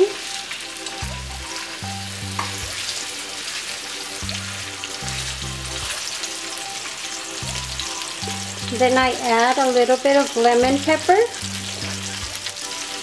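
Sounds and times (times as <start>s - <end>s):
chicken sizzling in frying pan: 0.0s - 13.0s
background music with pulsing bass: 4.2s - 5.9s.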